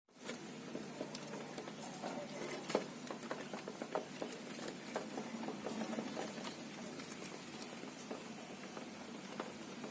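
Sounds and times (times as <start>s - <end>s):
parrots pecking and tapping: 0.2s - 9.9s.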